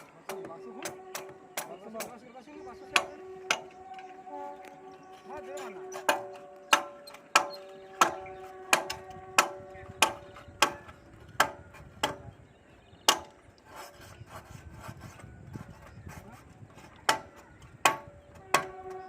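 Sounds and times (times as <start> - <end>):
hammer striking steel: 0.3 - 2.2, 2.8 - 3.8, 5.6 - 12.2, 13.1 - 13.4.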